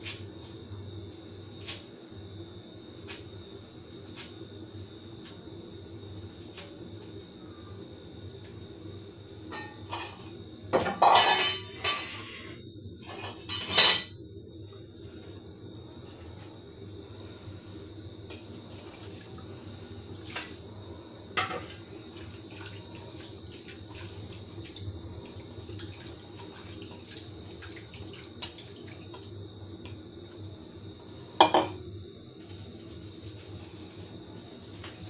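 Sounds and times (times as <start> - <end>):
metal utensils clinking: 11.0 - 12.1
water running or bubbling: 18.2 - 31.4.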